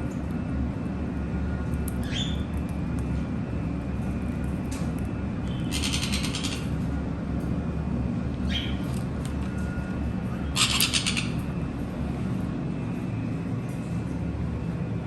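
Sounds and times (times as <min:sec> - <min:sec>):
steady low hum: 0:00.0 - 0:15.0
parrot chirping: 0:02.0 - 0:02.4, 0:05.6 - 0:06.7, 0:08.5 - 0:08.8, 0:10.5 - 0:11.4
parrot buzzy chatter: 0:05.6 - 0:06.7, 0:10.4 - 0:11.5.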